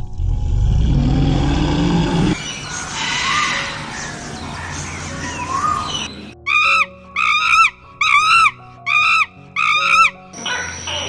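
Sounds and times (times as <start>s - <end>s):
high animal cry: 2.4s - 11.0s.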